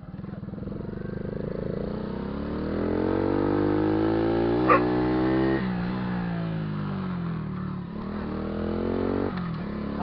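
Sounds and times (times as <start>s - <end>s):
motorcycle engine accelerating: 0.0s - 10.0s
dog bark: 4.6s - 5.0s.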